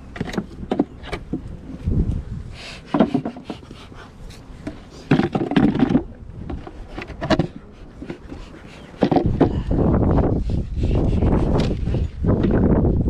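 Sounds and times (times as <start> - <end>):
wood scraping and rubbing: 2.7 - 12.6.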